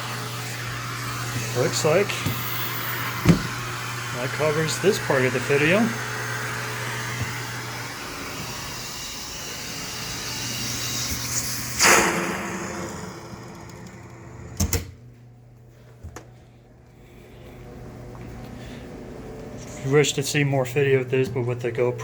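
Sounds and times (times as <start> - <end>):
vacuum suction rushing through hose: 0.0 - 14.6
loud whoosh: 11.7 - 14.3.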